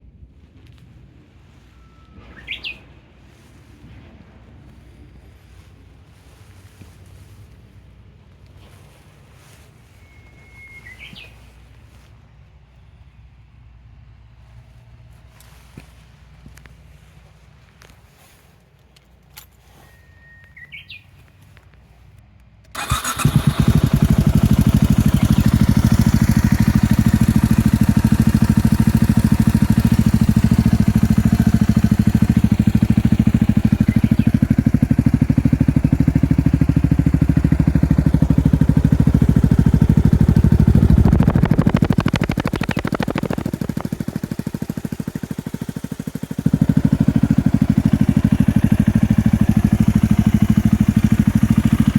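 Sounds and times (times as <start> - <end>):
bird chirp: 1.8 - 2.9, 9.9 - 11.8, 19.7 - 21.3, 24.6 - 27.6, 29.5 - 35.5, 41.1 - 43.9.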